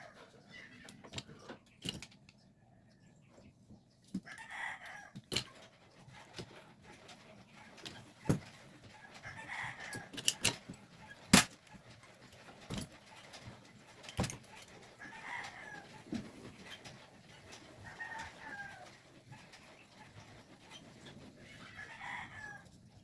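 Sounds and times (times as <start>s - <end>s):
chickens clucking: 7.2s - 10.2s, 14.6s - 22.9s.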